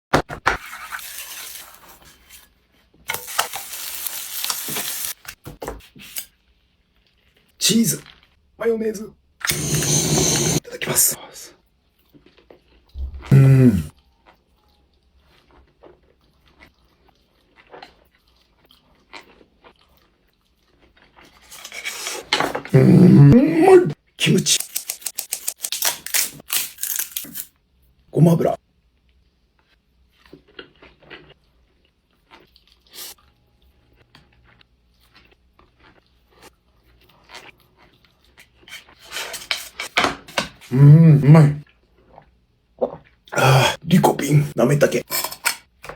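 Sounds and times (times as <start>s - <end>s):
soft eating sounds: 5.8s - 8.4s, 10.6s - 28.1s, 28.8s - 39.9s, 40.5s - 45.9s
person chewing food: 13.9s - 22.1s, 29.1s - 39.8s.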